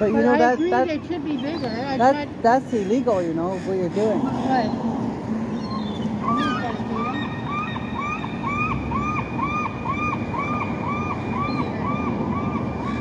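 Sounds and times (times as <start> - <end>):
low rumble of wind or traffic: 0.0 - 13.0
bird chirping: 5.5 - 8.7.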